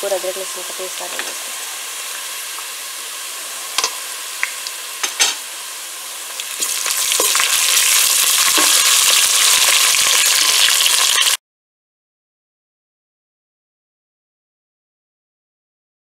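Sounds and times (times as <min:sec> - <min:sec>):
paste sizzling in hot oil: 0:00.0 - 0:11.4.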